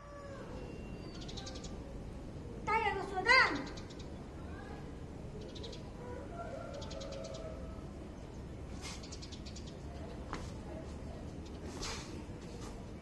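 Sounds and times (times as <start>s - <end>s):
birds chirping in rapid trills: 0.2s - 4.4s, 6.6s - 10.2s.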